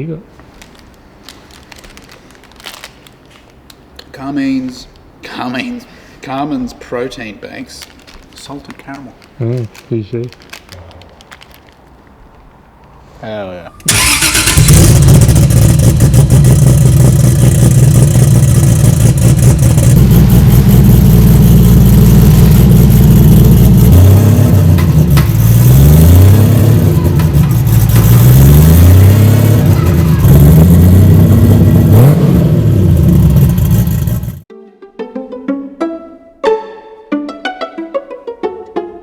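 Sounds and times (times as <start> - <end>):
car engine running and revving: 14.6 - 34.4.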